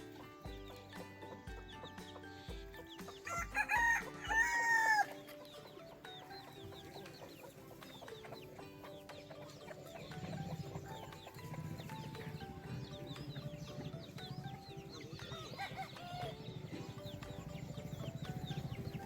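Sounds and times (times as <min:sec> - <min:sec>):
background music: 0:00.0 - 0:19.0
rooster crowing: 0:03.2 - 0:05.2, 0:15.2 - 0:16.5.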